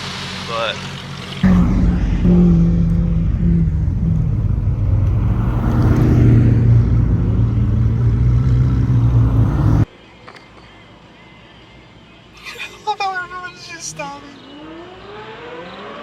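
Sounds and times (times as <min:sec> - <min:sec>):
loud supercar engine running: 0:01.2 - 0:09.9.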